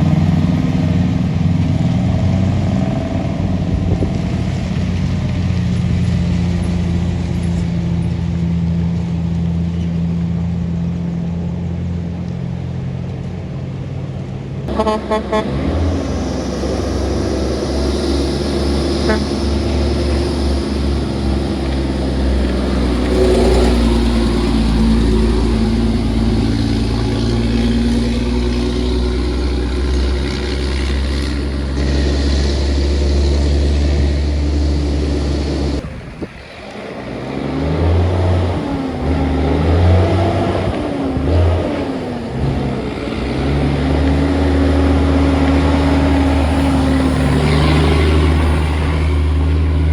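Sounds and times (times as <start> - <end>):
heavy truck engines under load: 0.0 - 49.9
horn toots: 14.7 - 20.6.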